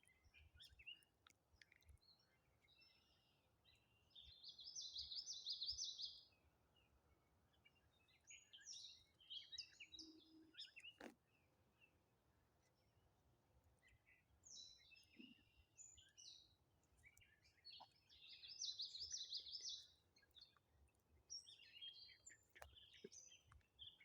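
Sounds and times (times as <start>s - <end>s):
songbirds singing faintly: 0.0s - 24.0s.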